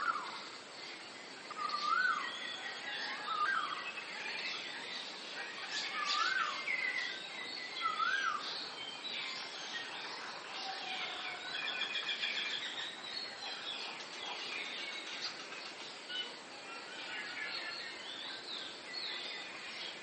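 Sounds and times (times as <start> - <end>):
birds singing and calling: 0.0 - 20.0
steady background hiss: 0.0 - 20.0.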